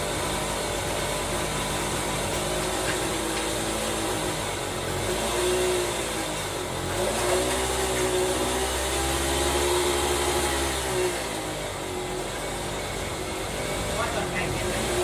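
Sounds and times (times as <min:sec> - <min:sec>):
small motor running: 0:00.0 - 0:15.0.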